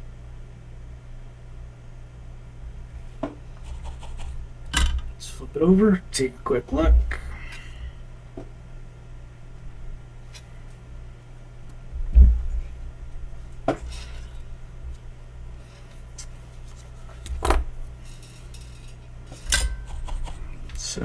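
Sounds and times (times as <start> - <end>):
steady low hum: 0.0 - 21.0
metal tools clinking: 18.0 - 20.3.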